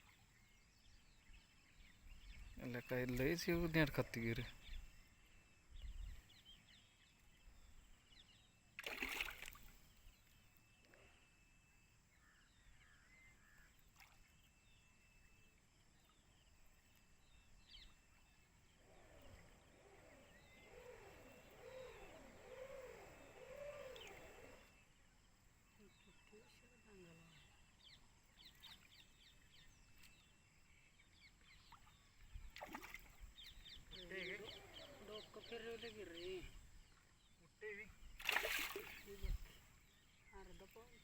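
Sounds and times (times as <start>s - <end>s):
water splash: 8.8s - 9.7s, 38.2s - 39.2s
bird chirps and calls: 18.8s - 24.7s, 32.6s - 36.7s
low wavering call: 19.2s - 24.7s.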